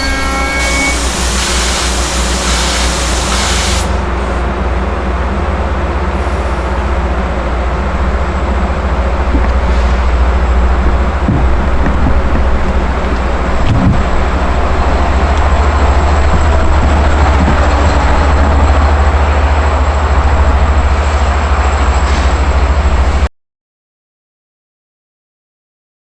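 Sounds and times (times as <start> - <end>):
thin high whine: 0.0 - 4.6
train rolling rumble: 0.0 - 23.3.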